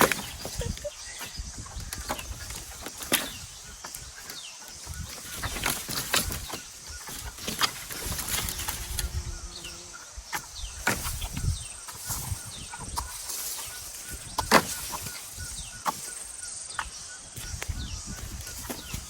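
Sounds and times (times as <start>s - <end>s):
hand tool scraping and knocking ground: 0.0s - 9.2s, 10.3s - 19.0s
small birds chirping: 0.0s - 19.0s.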